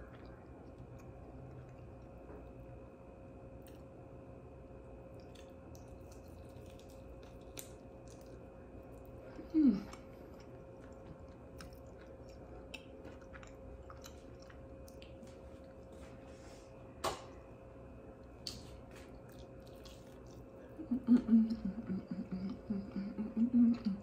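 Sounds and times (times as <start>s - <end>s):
person chewing crunchy food: 4.9s - 16.5s, 18.2s - 20.8s.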